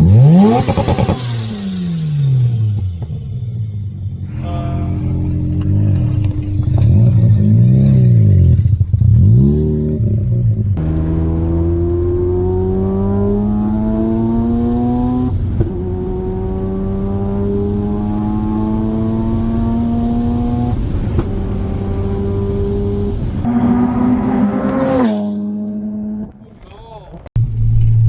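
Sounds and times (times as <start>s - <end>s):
car engine revving: 0.0s - 26.6s
high whine: 10.8s - 26.2s.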